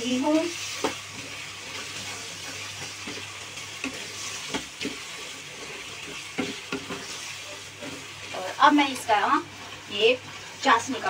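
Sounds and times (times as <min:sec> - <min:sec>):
halwa sizzling in a pan: 0:00.0 - 0:11.0
spatula scraping and tapping pan: 0:00.6 - 0:08.1.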